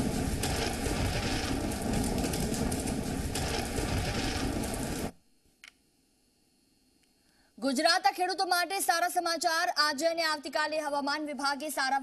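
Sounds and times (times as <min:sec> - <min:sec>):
heavy rain falling: 0:00.0 - 0:05.1.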